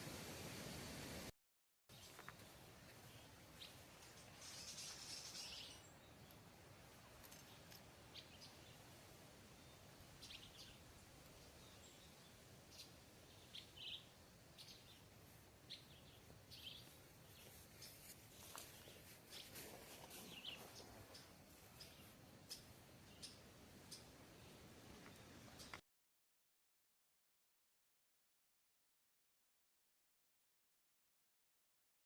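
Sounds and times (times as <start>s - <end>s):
low steady hiss: 0.0s - 1.3s, 1.9s - 25.8s
faint bird chirps: 2.0s - 6.4s.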